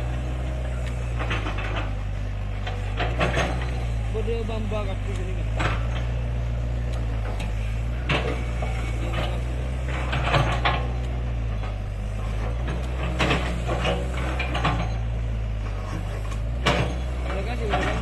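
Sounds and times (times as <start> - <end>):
excavator diesel engine running: 0.0 - 18.0
clanks and knocks on rock: 15.9 - 18.0.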